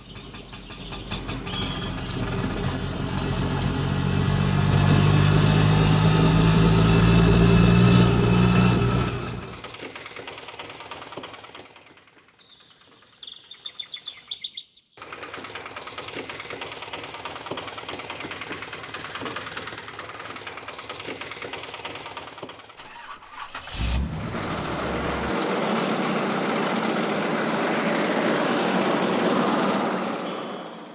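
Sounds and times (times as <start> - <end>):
engine puttering with ticking: 0.0 - 12.9, 15.0 - 29.8
hissy engine: 22.8 - 30.8.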